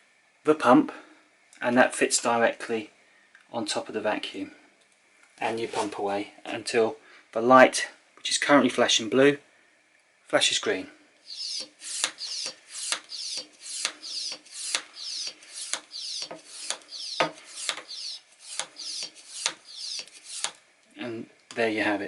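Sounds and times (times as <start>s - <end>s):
hand pump clicking and hissing: 11.3s - 20.6s.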